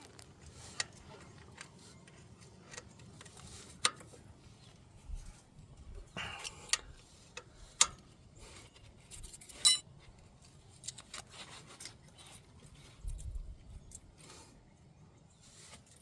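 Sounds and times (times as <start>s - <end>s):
metallic clicks and clinks: 9.1s - 9.8s
loud ringing metal clink: 9.6s - 9.8s.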